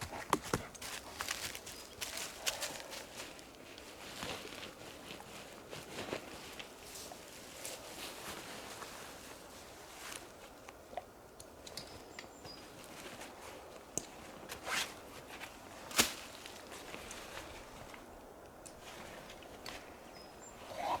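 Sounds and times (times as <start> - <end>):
footsteps on forest floor: 0.0 - 8.2.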